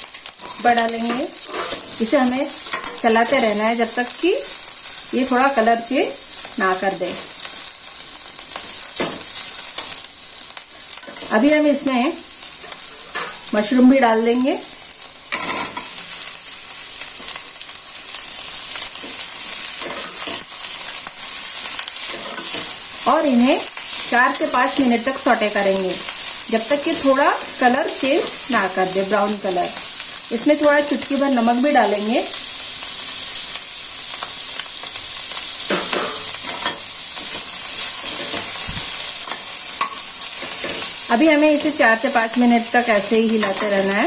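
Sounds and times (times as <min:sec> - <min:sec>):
vegetables sizzling in hot oil: 0:00.0 - 0:44.0
spatula scraping a pan: 0:00.4 - 0:03.0.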